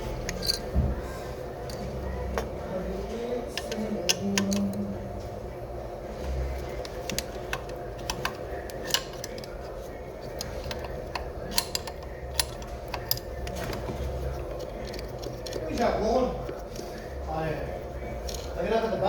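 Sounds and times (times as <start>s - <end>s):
steady low hum: 0.0s - 19.0s
metal tools clinking: 0.3s - 0.7s.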